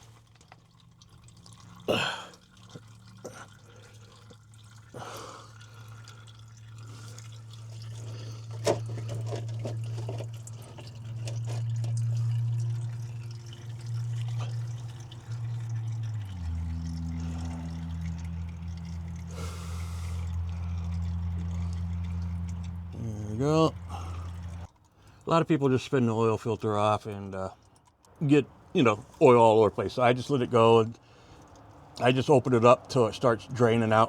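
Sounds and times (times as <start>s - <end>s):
low steady hum: 0.0s - 25.2s
oil dripping into drain pan: 0.0s - 34.0s
knocks of filter and wrench: 7.8s - 13.2s.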